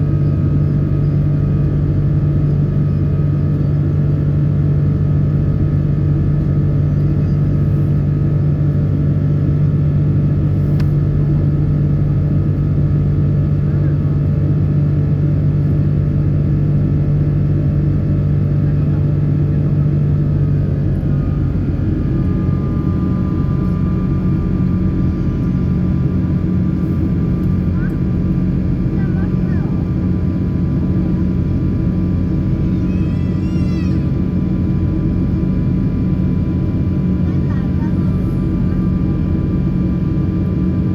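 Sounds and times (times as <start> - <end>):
airliner cabin engine rumble: 0.0 - 40.9
steady low hum: 0.0 - 40.9
high-pitched cry: 32.6 - 34.1.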